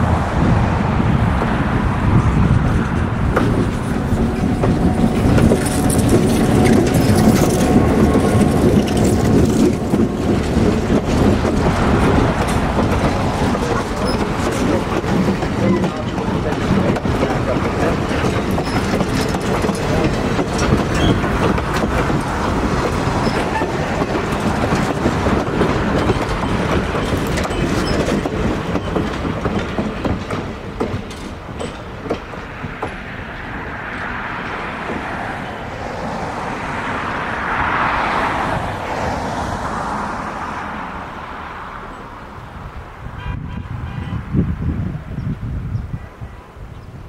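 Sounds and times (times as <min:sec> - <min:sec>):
train wheels clacking over joints: 0:02.2 - 0:36.3.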